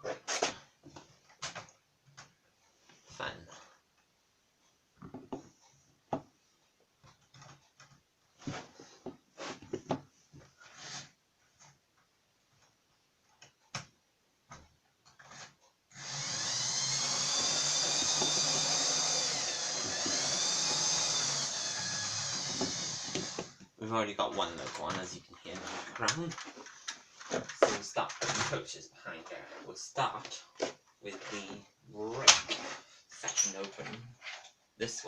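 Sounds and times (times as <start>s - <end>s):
model train motor whirring: 16.0s - 23.4s.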